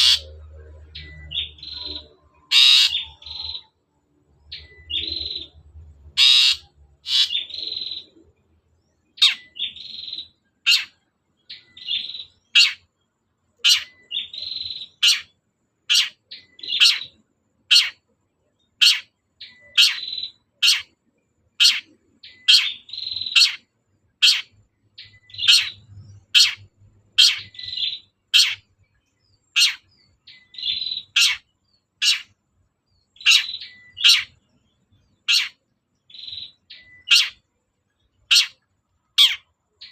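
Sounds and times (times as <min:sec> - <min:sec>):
shrike singing: 0:00.0 - 0:03.8.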